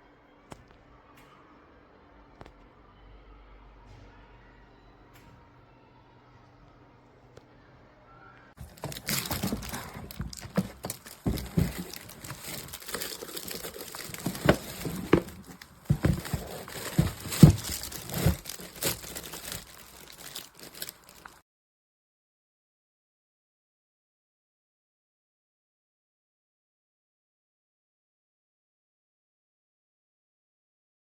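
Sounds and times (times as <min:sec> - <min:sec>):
crinkling and rustling: 0:08.6 - 0:21.4.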